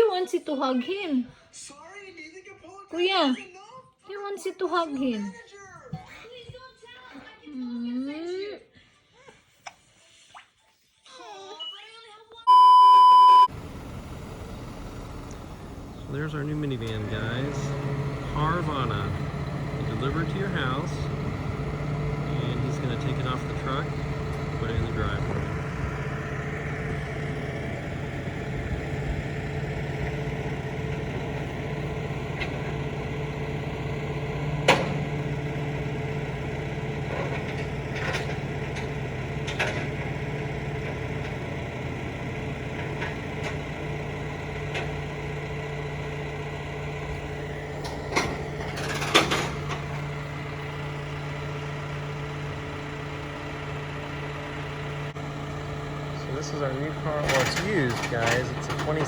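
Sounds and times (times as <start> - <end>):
vehicle engine idling: 13.4 - 59.0.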